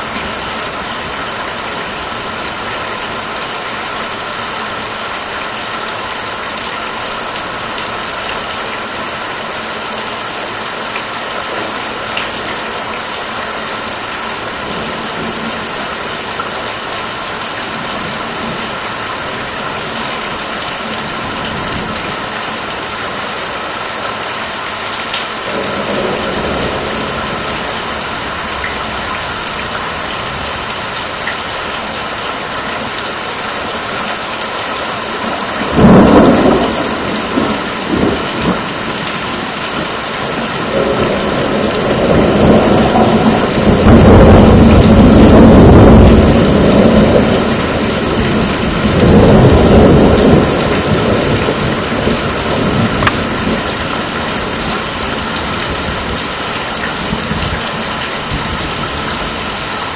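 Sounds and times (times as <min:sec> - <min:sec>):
steady rain: 0:00.0 - 0:59.9
rolling thunder rumble: 0:25.5 - 0:29.4, 0:35.6 - 0:39.3, 0:40.3 - 0:54.8
sharp thunderclap: 0:35.7 - 0:38.6, 0:40.6 - 0:47.5, 0:48.3 - 0:53.6.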